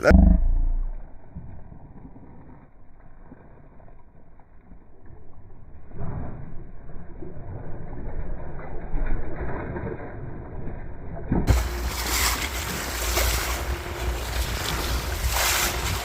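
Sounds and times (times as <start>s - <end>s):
low rumble: 0.0s - 16.0s
sea noise: 11.5s - 16.0s.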